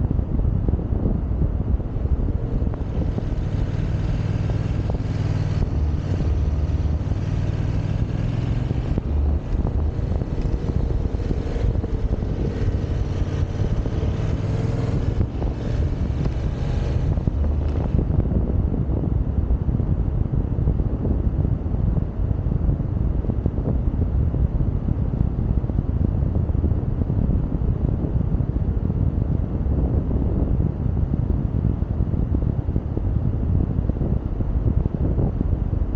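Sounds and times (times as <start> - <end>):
motorcycle engine running: 0.0 - 18.6
wind on microphone: 0.0 - 35.9.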